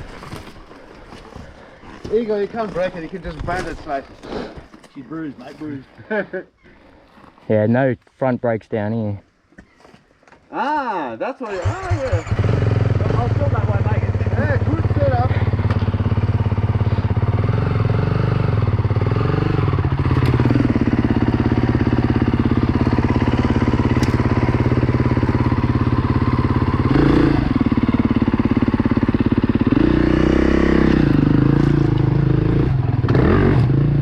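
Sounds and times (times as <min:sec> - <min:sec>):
dirt bike engine running: 0:11.7 - 0:34.0.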